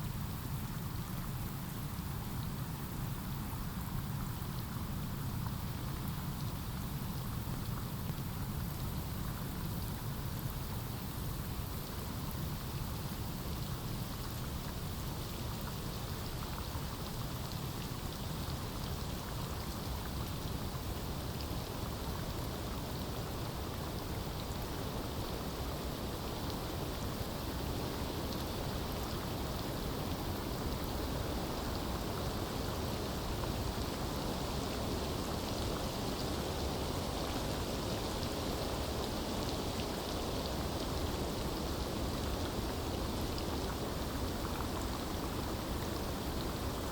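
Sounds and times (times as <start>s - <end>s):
rain on foliage: 10.2s - 46.9s.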